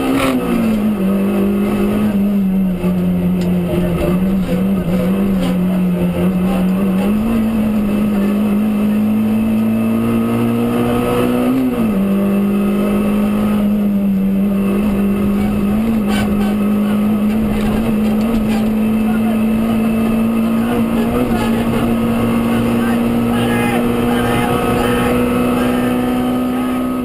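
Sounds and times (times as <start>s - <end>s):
rally car engine running hard: 0.0s - 27.0s.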